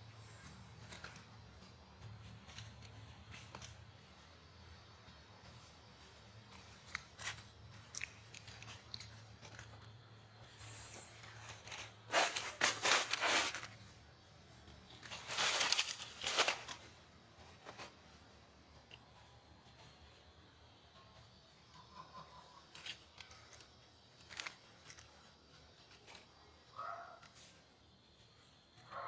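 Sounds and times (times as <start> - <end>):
crunching: 6.5 - 10.5, 11.2 - 13.9, 14.8 - 17.0, 22.2 - 26.3.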